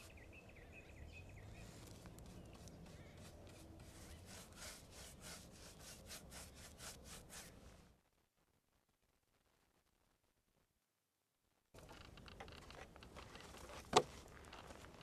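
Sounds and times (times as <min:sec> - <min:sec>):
faint rhythmic rubbing strokes: 0:01.3 - 0:08.0.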